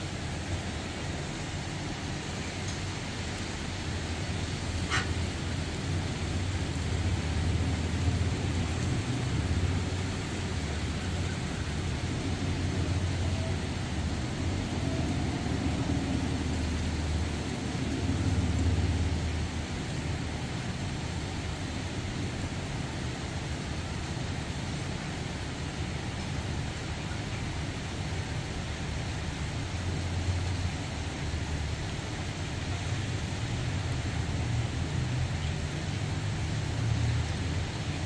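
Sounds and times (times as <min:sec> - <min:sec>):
distant train rumbling: 0:00.0 - 0:26.8
heavy rain hissing: 0:00.0 - 0:38.0.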